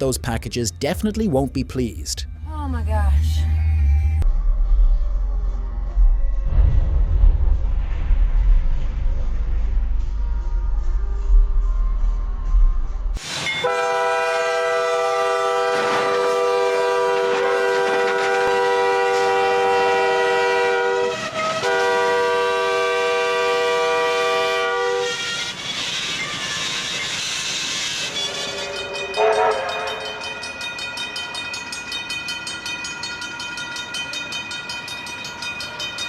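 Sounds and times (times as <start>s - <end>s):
rushing noise: 4.3s - 13.6s
train horn blasts: 13.6s - 25.7s, 28.1s - 30.4s.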